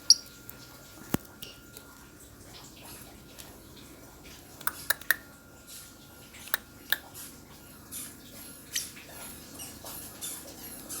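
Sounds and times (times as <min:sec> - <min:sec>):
lovebird chirping: 0:00.0 - 0:00.3, 0:08.7 - 0:09.0.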